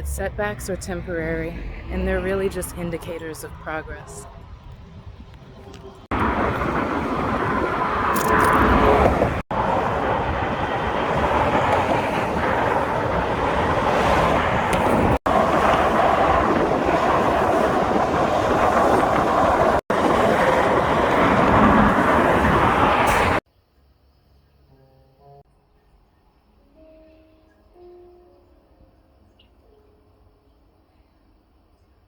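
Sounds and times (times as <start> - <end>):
moving vehicle rumbling: 0.0 - 23.4.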